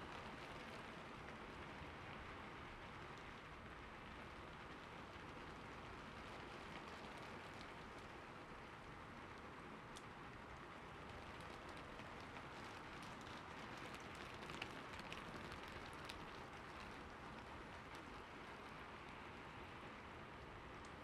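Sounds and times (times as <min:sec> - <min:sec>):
soft ticks and clicks: 0:20.8 - 0:21.0.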